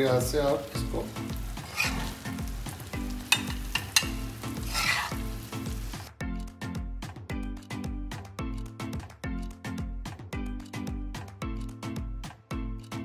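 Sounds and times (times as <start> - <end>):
meat sizzling in a pan: 0.0 - 6.1
background music: 0.0 - 13.0
spatula clicking against pan: 3.2 - 5.1.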